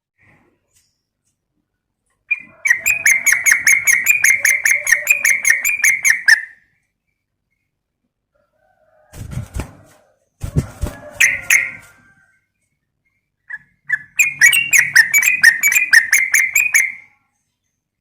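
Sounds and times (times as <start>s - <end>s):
bird calling: 2.3s - 6.6s, 13.5s - 17.1s
bird chattering: 2.3s - 6.6s, 13.5s - 17.1s.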